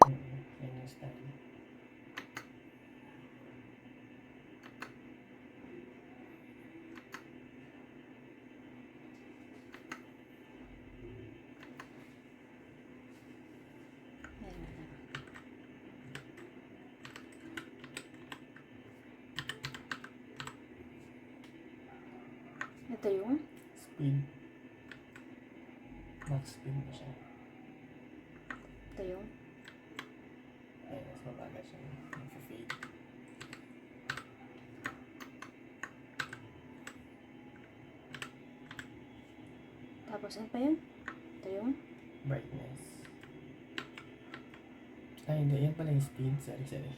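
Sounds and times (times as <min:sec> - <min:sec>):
keyboard keys clicking: 0:17.0 - 0:18.4, 0:19.4 - 0:20.6, 0:32.1 - 0:37.0, 0:38.1 - 0:38.9.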